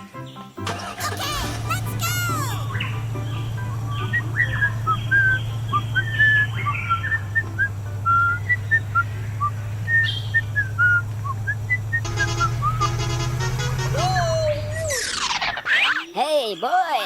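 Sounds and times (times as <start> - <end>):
whistled chirps: 1.7 - 13.0, 13.9 - 16.0.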